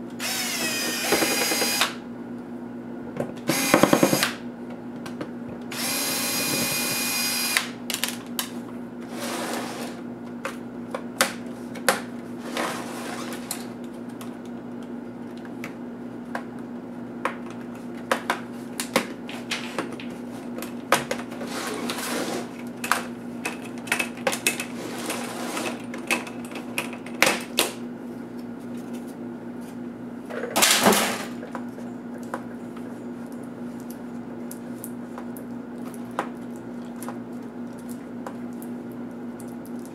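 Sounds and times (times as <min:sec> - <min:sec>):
small power tool whirring: 0:00.2 - 0:02.0, 0:03.5 - 0:04.4, 0:05.7 - 0:07.8.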